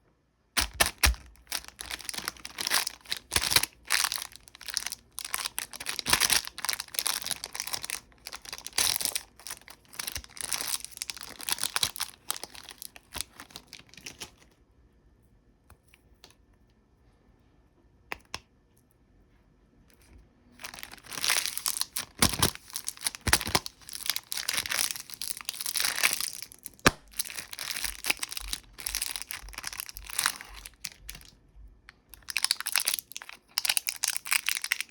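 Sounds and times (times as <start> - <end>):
snack wrappers crinkling: 0.6 - 14.4, 20.6 - 31.4, 32.0 - 34.9.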